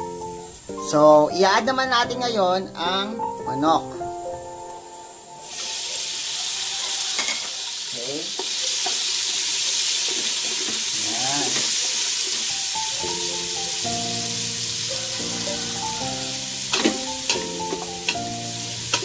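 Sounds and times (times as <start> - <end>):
background music: 0.0 - 6.4, 12.1 - 19.0
chicken sizzling in butter: 5.1 - 19.0.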